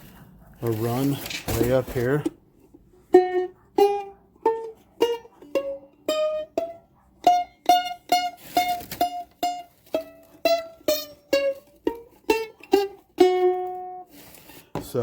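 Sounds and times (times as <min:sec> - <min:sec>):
mandolin picked notes: 0:03.1 - 0:14.2.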